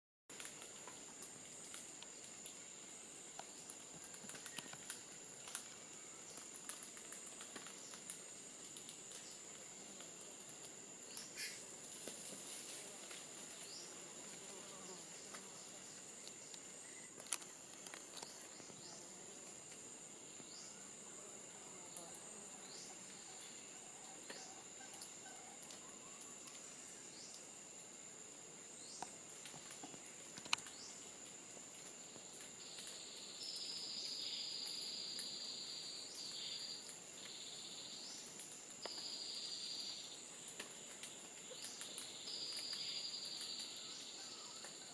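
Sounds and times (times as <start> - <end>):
insect chirps: 0.3 - 44.9
loud buzzing insect call: 11.1 - 27.5.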